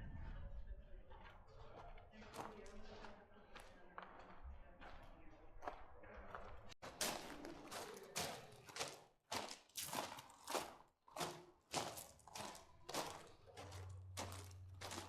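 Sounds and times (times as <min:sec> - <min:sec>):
footsteps crunching: 0:06.8 - 0:15.0.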